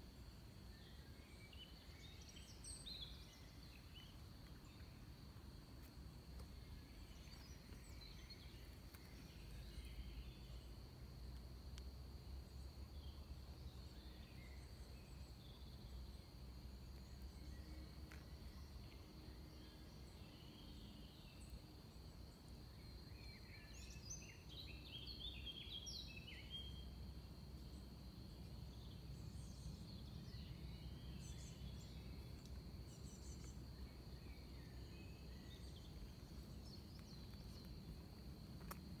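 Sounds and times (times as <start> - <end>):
small birds chirping: 28.7 - 39.0.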